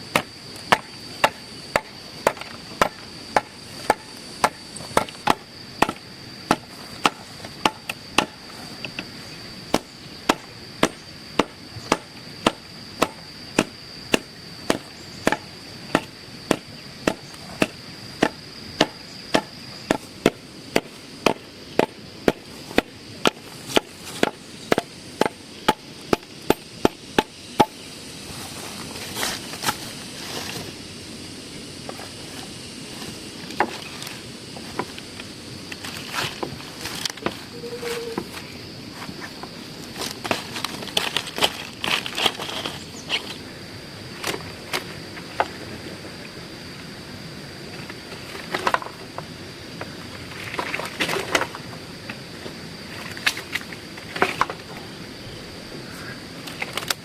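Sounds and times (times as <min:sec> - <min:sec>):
high-pitched whine: 0:00.0 - 0:39.9
chopping blows: 0:09.7 - 0:27.8.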